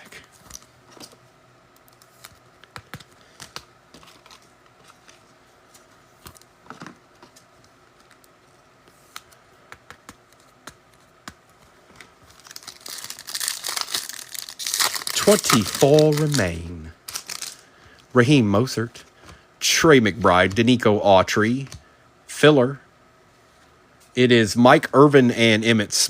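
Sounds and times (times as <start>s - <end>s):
wrapper crinkling and tearing: 12.1s - 17.7s.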